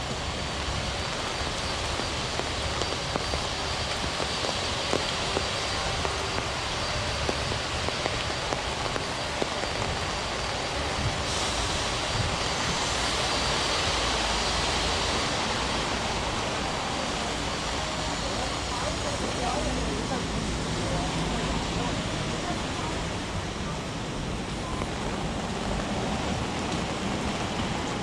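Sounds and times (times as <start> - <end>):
heavy rain hiss: 0.0 - 28.0
rain drop ticks: 1.1 - 10.6.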